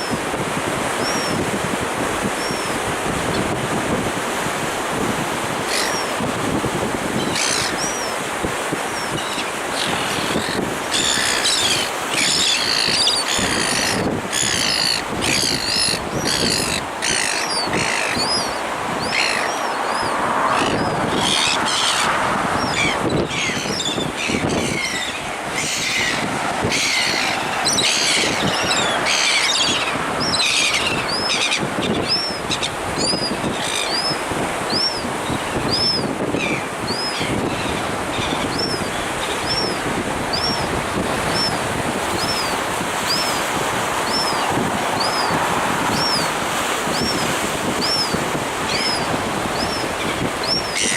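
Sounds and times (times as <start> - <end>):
wind and surf: 0.0 - 50.9
small birds chirping: 9.0 - 22.0, 46.9 - 50.9.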